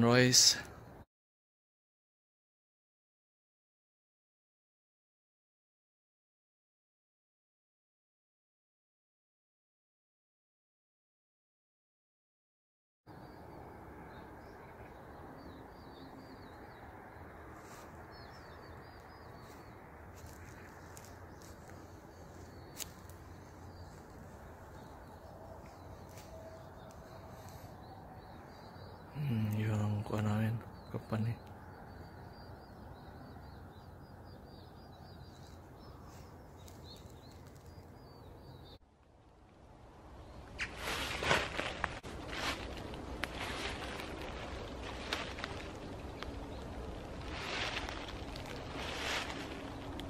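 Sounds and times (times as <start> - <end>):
small birds chirping: 13.1 - 38.8, 40.1 - 50.0
low outdoor air hum: 13.1 - 50.0.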